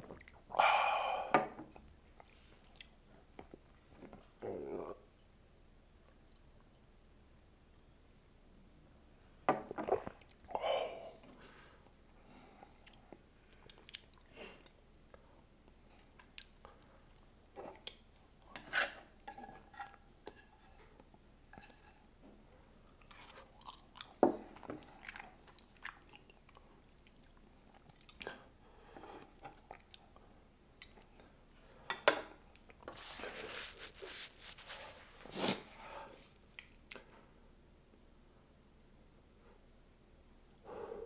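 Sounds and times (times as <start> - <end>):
sharp clicks and mouth noises: 1.8 - 4.2, 12.8 - 14.8, 16.1 - 18.1, 36.5 - 37.2
person chewing noodles: 12.7 - 14.7, 22.9 - 30.2.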